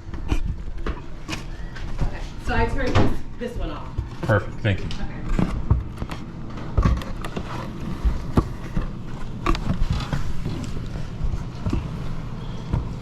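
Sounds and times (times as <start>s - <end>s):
irregular thumps and knocks: 5.2s - 13.0s.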